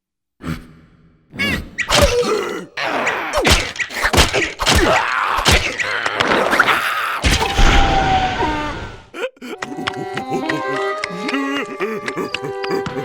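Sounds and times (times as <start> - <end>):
cartoon characters groaning: 1.3 - 13.0
slapstick whacks and thuds: 3.4 - 6.5.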